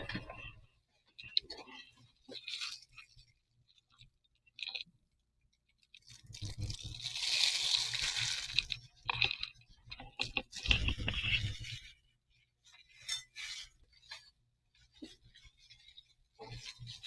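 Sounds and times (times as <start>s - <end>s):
foam fizzing and crackling: 6.0s - 9.7s.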